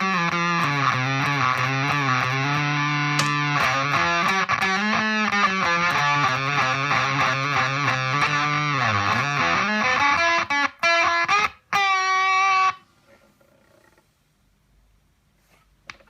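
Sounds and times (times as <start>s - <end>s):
fuzzed electric guitar notes: 0.0s - 12.8s.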